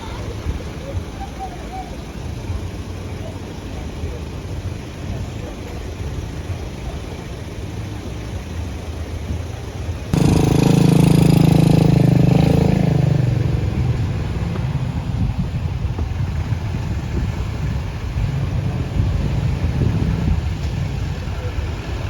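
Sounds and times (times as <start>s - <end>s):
truck engines rumbling: 0.0s - 22.0s
loud engine roar: 10.1s - 22.0s.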